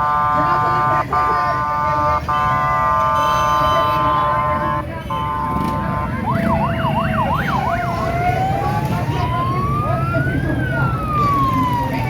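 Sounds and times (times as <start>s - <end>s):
vehicle electronic horn blaring: 0.0s - 6.2s
crowd noise: 0.0s - 12.0s
low rumble of engines: 0.0s - 12.0s
siren yelping and wailing: 5.3s - 12.0s.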